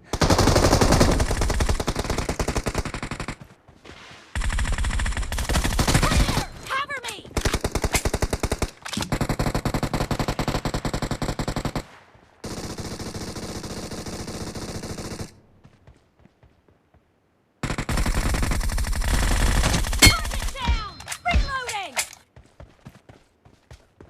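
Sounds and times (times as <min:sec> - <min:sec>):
video game automatic gunfire: 0:00.0 - 0:03.5, 0:04.4 - 0:06.6, 0:07.4 - 0:15.4, 0:17.6 - 0:20.7.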